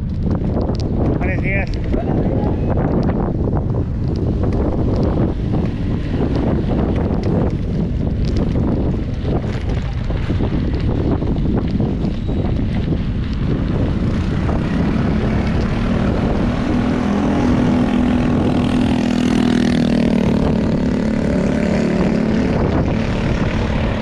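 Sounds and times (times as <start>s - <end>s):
wind buffeting microphone: 0.0s - 24.0s
vehicle engine passing: 13.8s - 24.0s.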